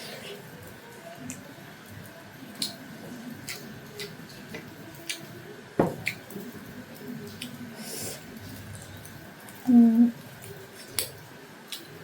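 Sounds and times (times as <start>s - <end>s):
knock: 5.8s - 6.0s.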